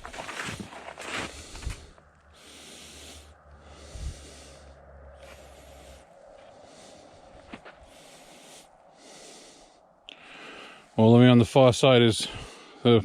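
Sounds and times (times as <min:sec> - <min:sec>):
snowshoe steps in snow: 0:00.0 - 0:01.9
person breathing hard: 0:00.4 - 0:11.0, 0:12.2 - 0:12.8
low rumble: 0:01.3 - 0:11.0.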